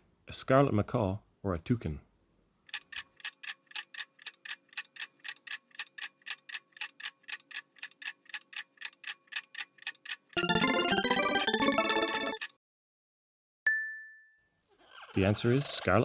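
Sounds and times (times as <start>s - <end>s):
clock ticking: 2.7s - 12.5s
bright chiming jingle: 10.4s - 12.4s.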